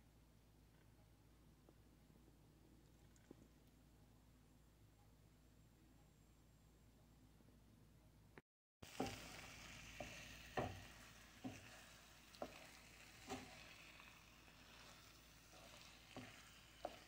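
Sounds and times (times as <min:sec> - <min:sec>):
food sizzling in a skillet: 0:08.8 - 0:17.0
wooden spatula scraping skillet: 0:08.9 - 0:17.0.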